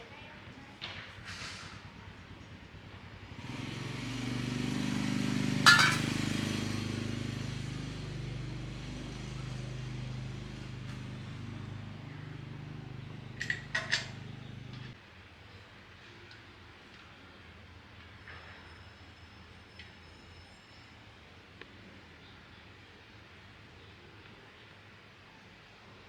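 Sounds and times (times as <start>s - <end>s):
motor humming: 8.7s - 14.9s.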